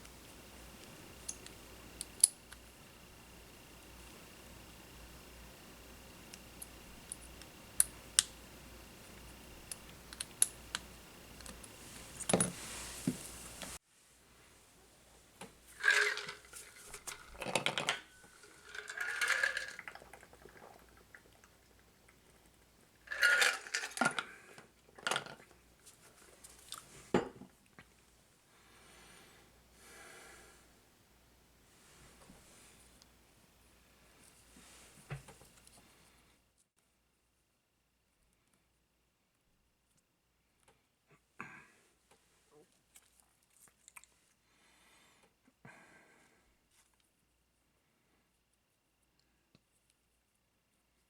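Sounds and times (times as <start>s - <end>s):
scraping and rustling: 15.6s - 19.9s.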